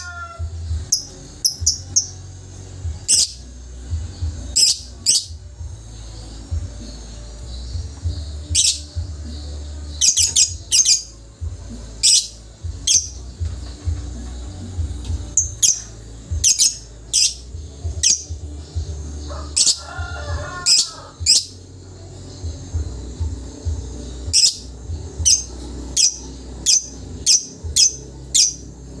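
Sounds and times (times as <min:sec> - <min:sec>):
bird chirping: 0:00.0 - 0:19.8, 0:20.5 - 0:29.0
bird warbling chatter: 0:03.1 - 0:03.4, 0:07.8 - 0:09.2, 0:10.0 - 0:11.2, 0:11.9 - 0:14.2, 0:19.4 - 0:21.6.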